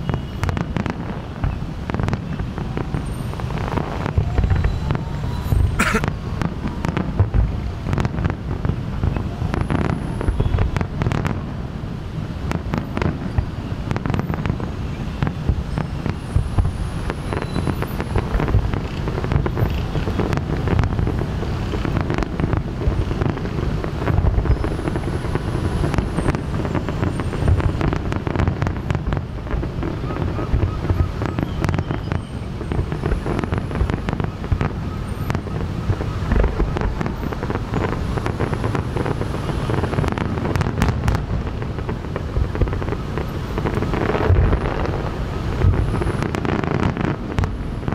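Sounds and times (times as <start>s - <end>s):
fireworks bangs and booms: 0.0s - 47.9s.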